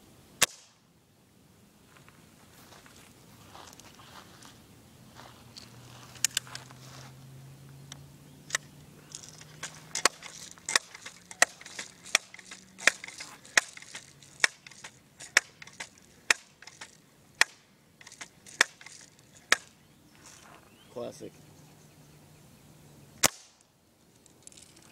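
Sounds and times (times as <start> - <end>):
air gun clicks: 8.5 - 19.7.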